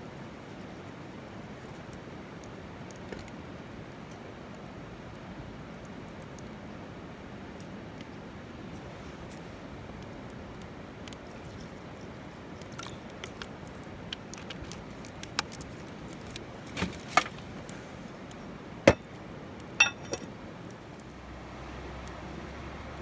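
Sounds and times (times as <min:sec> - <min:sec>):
hard objects knocking and clinking: 0:19.8 - 0:20.3.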